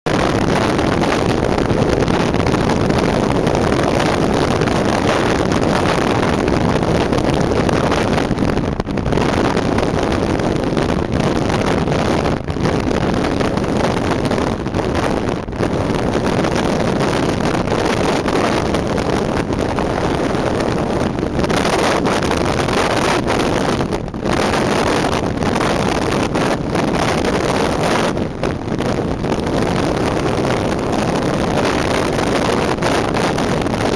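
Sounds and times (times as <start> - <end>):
wind rushing over microphone: 0.1 - 33.9
car road noise: 15.7 - 33.3.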